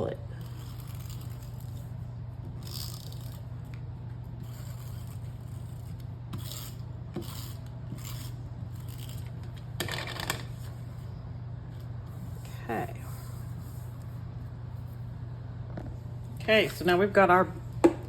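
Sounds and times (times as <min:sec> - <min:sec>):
steady low hum: 0:00.0 - 0:18.0
paper being rubbed scratchily: 0:04.4 - 0:09.2.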